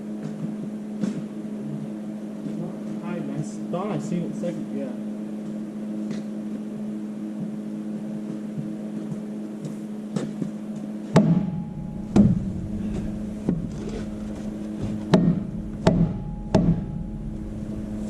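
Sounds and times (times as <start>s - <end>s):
steady hum: 0.0s - 18.0s
heavy hammer blows on metal: 11.2s - 18.0s.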